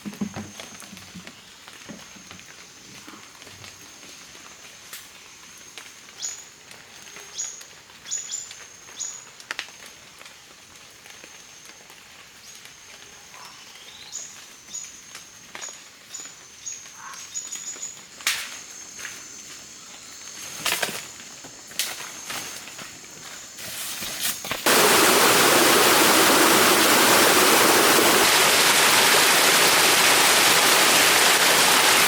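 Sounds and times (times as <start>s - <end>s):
steady high whine: 24.7s - 32.0s.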